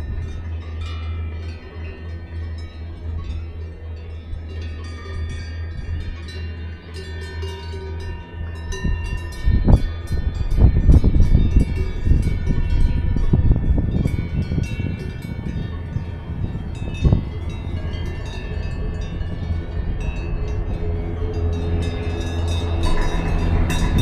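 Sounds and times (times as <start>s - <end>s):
low rumble: 0.0s - 24.0s
cowbells clanking: 0.1s - 24.0s.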